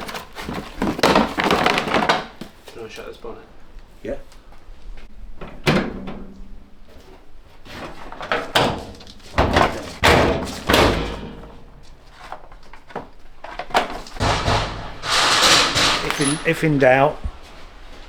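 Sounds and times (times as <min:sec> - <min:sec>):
heavy thumps and knocks: 0:14.2 - 0:17.5.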